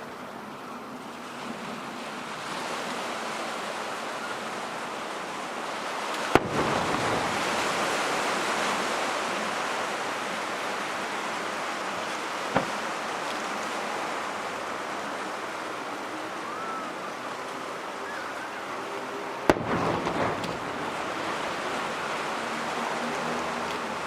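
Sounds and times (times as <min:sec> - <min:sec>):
steady rushing background noise: 0:04.9 - 0:24.0
firework crackling: 0:06.1 - 0:10.1, 0:19.4 - 0:24.0
firework bang: 0:06.3 - 0:07.9, 0:12.5 - 0:12.8, 0:19.5 - 0:22.0
faint pop: 0:12.5 - 0:12.8.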